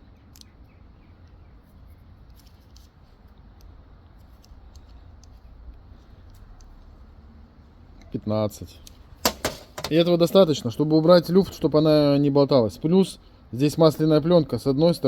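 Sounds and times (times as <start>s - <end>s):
small parts clicking: 0.1s - 1.4s, 2.0s - 6.9s.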